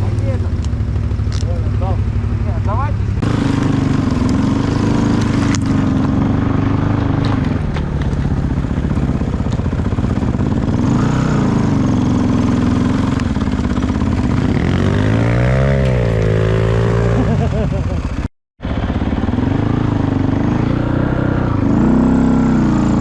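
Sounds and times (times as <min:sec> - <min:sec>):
off-road vehicle engine: 0:00.0 - 0:23.0.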